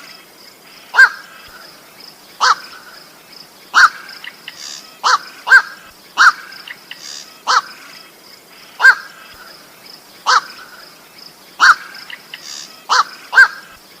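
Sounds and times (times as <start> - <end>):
faint high hiss: 0.0 - 14.0
heron harsh croaks: 5.0 - 7.9, 10.2 - 10.7.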